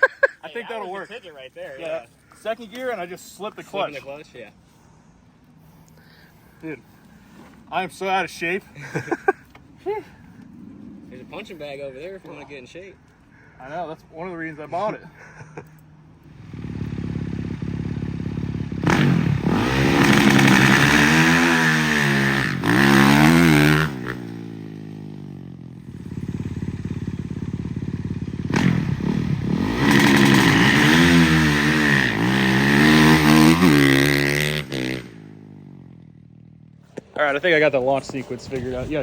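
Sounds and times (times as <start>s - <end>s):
truck engine idling and revving: 16.2s - 37.0s.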